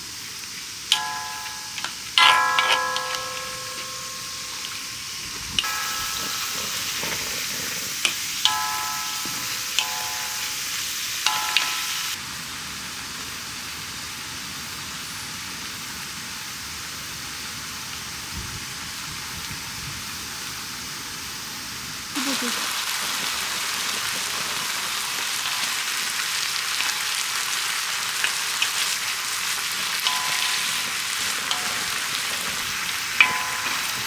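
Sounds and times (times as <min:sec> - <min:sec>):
food sizzling in a pan: 0:00.0 - 0:34.0
rain hissing: 0:00.0 - 0:34.0
metal clinks on pan: 0:00.9 - 0:12.2, 0:25.4 - 0:34.0.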